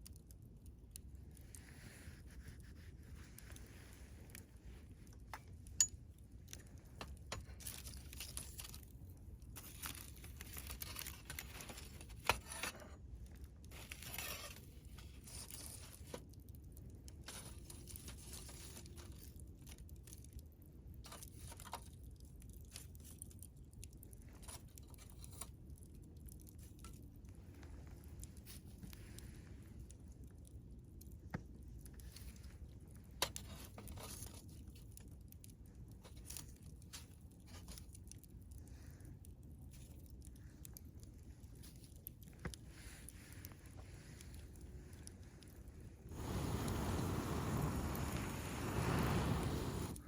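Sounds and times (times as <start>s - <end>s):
campfire crackling and hissing: 0.0s - 50.0s
sharp fire pops: 46.1s - 50.0s.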